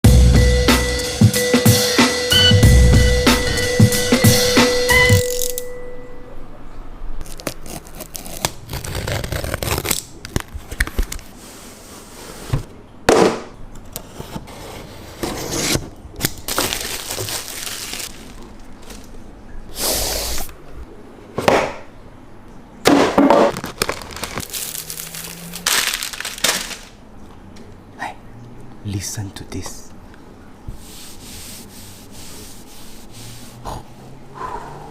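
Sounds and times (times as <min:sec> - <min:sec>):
packaging rustling and tearing: 0:07.2 - 0:12.7, 0:14.2 - 0:19.3, 0:23.4 - 0:27.0.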